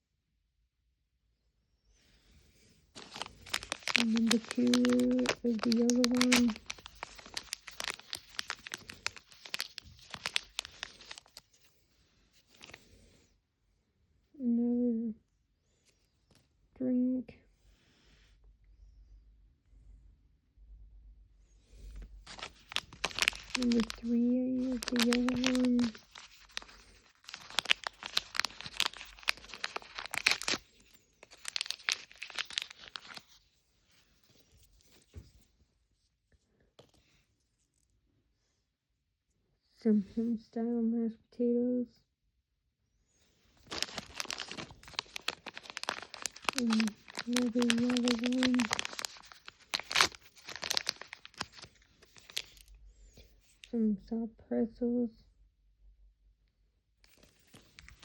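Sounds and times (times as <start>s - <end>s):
plastic wrapper crinkling: 2.9s - 11.6s, 12.4s - 12.9s, 22.2s - 33.4s, 43.6s - 52.7s, 57.0s - 58.0s.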